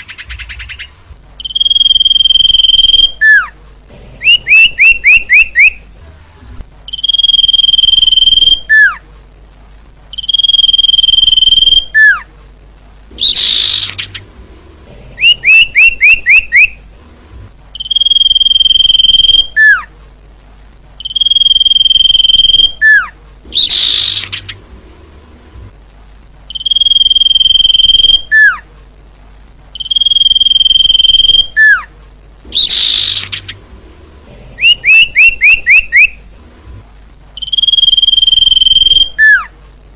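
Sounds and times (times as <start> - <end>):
bird singing: 0.0 - 3.6, 4.2 - 5.9, 6.8 - 9.0, 10.1 - 12.3, 13.1 - 14.3, 15.2 - 16.8, 17.7 - 19.9, 21.0 - 24.7, 26.5 - 28.7, 29.7 - 31.9, 32.5 - 33.6, 34.6 - 36.2, 37.4 - 39.5.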